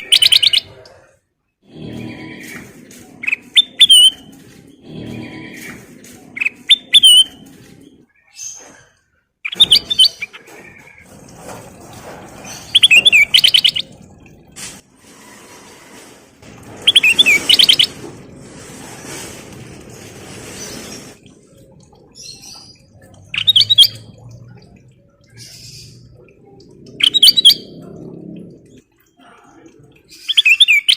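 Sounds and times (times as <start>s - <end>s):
bulbul chirping with trills: 12.8s - 14.0s.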